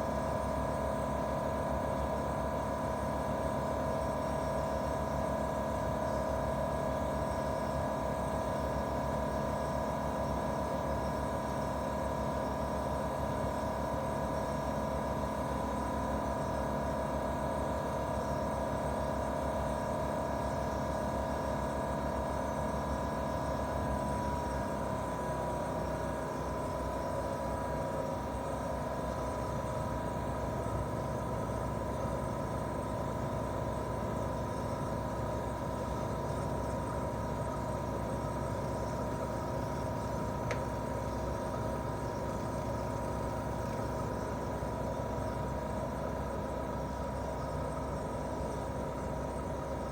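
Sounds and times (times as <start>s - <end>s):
air conditioner unit humming: 13.0s - 49.9s
faint tick: 40.4s - 40.7s.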